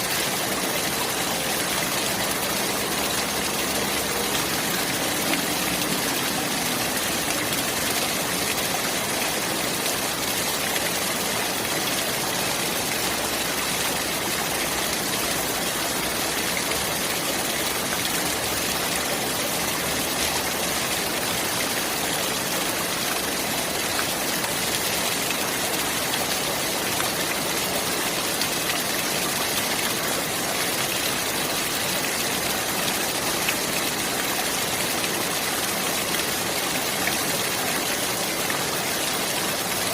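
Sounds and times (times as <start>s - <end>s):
running water flowing: 0.0s - 39.9s.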